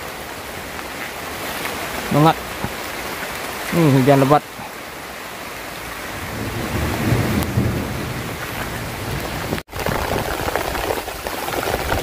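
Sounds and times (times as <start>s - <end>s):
heavy rain on leaves: 0.0s - 12.0s
low rumble of thunder: 6.2s - 10.4s.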